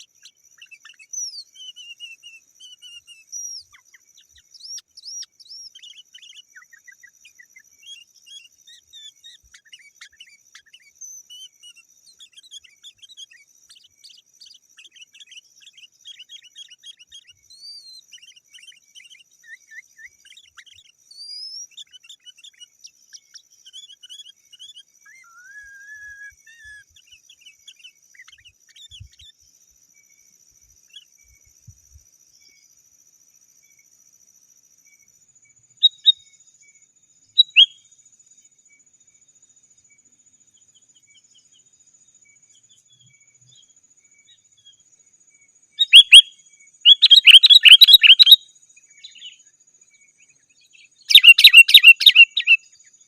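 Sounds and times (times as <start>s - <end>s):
bulbul whistled chirps: 0.0s - 29.4s, 35.8s - 36.4s, 37.3s - 37.9s, 45.8s - 49.5s, 50.6s - 53.0s.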